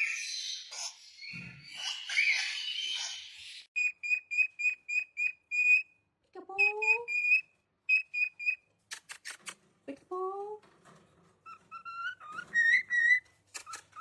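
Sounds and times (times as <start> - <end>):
parrot screeching: 0.0 - 3.6.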